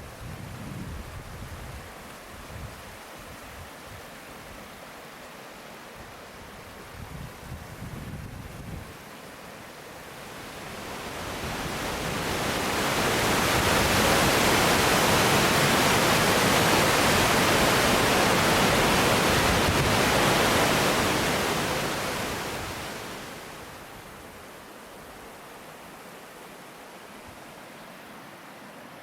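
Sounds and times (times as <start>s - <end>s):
waterfall rushing: 9.1s - 29.0s.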